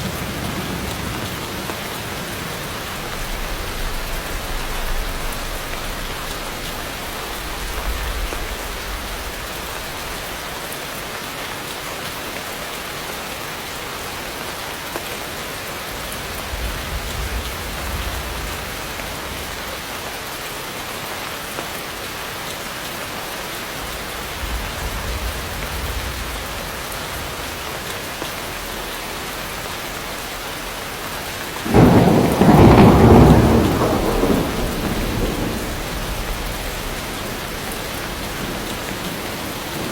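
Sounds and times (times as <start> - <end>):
loud thunderclap: 0.0 - 10.5, 16.0 - 19.8, 23.8 - 27.8, 31.6 - 39.9
distant thunder rolling: 0.0 - 10.6, 15.9 - 19.9, 23.8 - 28.2, 31.6 - 39.9
heavy rain falling: 0.0 - 39.9.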